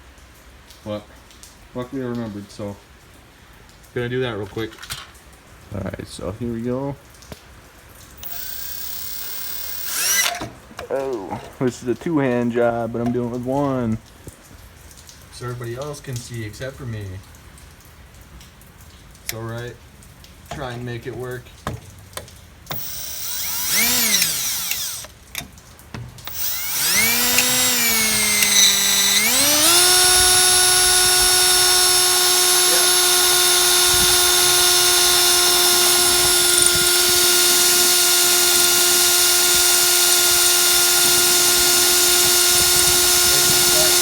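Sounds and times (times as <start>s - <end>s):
electric drill boring into steel: 8.2s - 10.5s, 22.7s - 25.1s, 26.2s - 44.0s.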